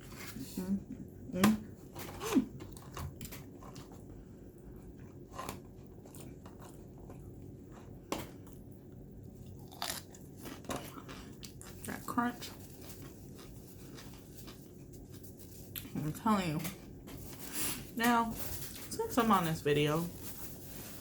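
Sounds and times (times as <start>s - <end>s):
lobster crunching and chewing: 4.9s - 15.9s.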